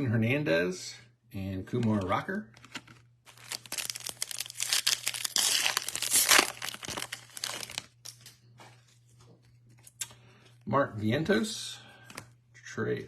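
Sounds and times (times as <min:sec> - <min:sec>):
foil wrapper tearing and crinkling: 0:02.6 - 0:08.3.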